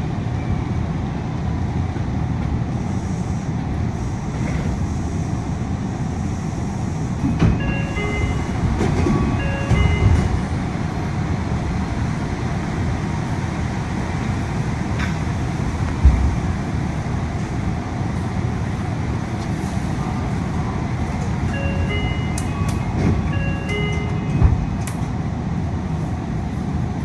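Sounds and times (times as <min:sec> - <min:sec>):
air-conditioning noise: 0:00.0 - 0:27.0
train running rumble: 0:00.0 - 0:27.0
electronic chime notes: 0:21.5 - 0:24.4.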